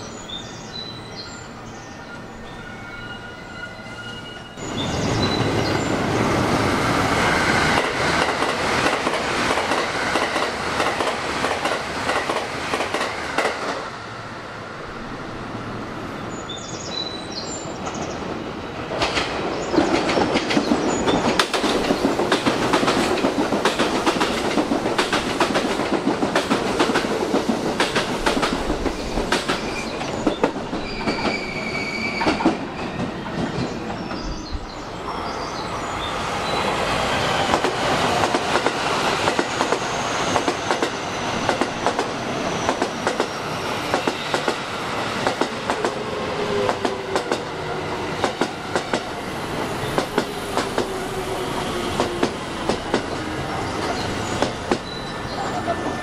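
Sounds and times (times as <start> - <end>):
train wheel and rail rush: 0.0 - 56.0
steady high squeal: 0.4 - 7.8, 30.8 - 38.2
clacking over rail joints: 7.7 - 13.8, 19.0 - 31.4, 37.5 - 44.6, 48.2 - 49.2, 52.0 - 53.2.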